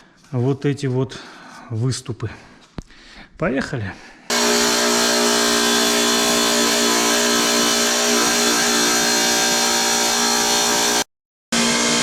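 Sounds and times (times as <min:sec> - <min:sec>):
power saw cutting tile: 0:04.3 - 0:12.0.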